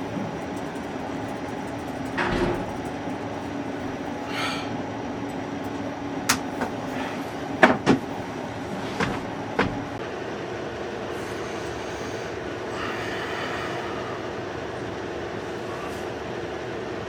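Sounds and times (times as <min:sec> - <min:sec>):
low mechanical hum: 0:00.0 - 0:17.0
sharp clicks and knocks: 0:05.7 - 0:06.8.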